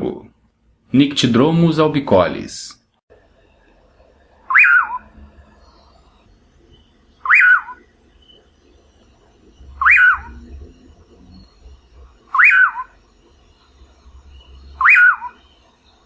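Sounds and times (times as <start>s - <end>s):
bird whistled calls: 4.4s - 5.9s, 7.2s - 7.9s, 9.6s - 10.6s, 12.3s - 13.0s, 14.4s - 15.6s.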